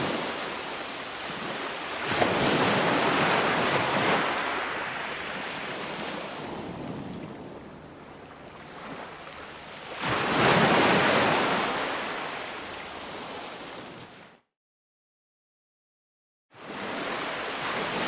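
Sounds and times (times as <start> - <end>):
ocean waves crashing: 0.0 - 14.1.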